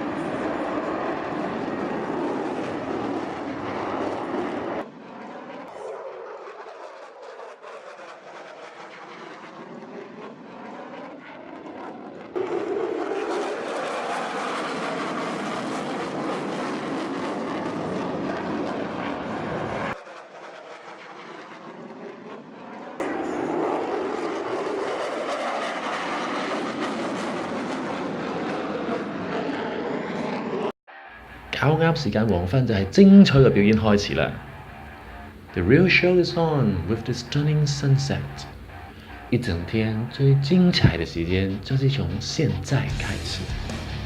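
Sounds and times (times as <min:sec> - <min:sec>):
jet aircraft flying past: 0:00.0 - 0:44.0.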